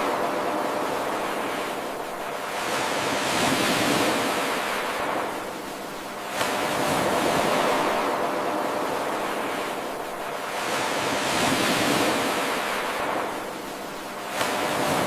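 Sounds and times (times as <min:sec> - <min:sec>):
ocean waves washing onto shore: 0:00.0 - 0:15.0.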